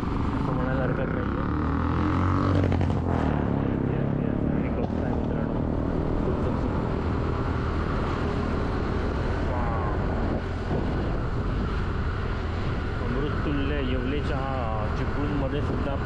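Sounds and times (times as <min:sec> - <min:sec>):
car engine: 0:00.0 - 0:16.0
road rumble: 0:00.0 - 0:16.0
wind: 0:00.0 - 0:16.0.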